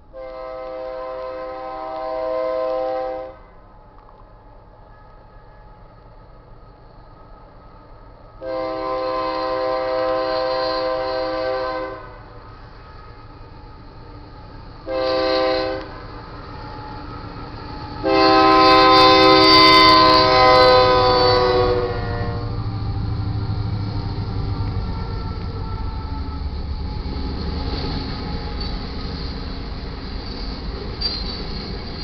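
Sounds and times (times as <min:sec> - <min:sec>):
low rumble of passing locomotives: 0:00.0 - 0:32.0
locomotive air horn blasts: 0:00.1 - 0:03.6, 0:08.4 - 0:12.4, 0:14.8 - 0:16.0, 0:18.0 - 0:22.6.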